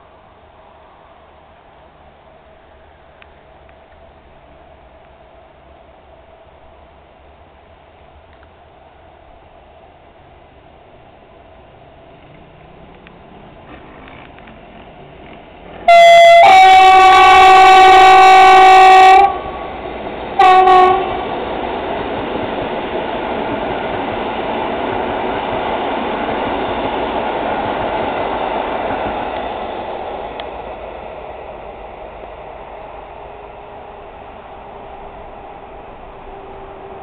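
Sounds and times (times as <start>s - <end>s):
train rumbling on rails: 0.0s - 37.0s
train horn blasts: 15.8s - 19.8s, 20.4s - 21.4s, 36.2s - 37.0s.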